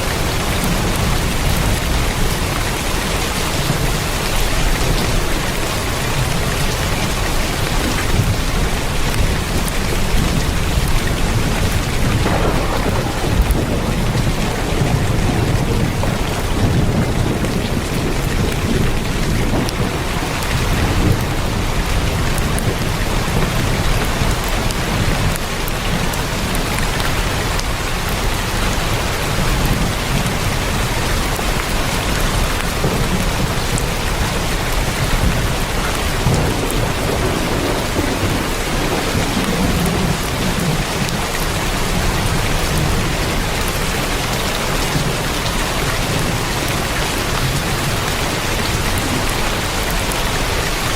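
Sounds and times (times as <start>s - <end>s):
rain on a tin roof: 0.0s - 50.9s
low rumble: 11.6s - 17.5s.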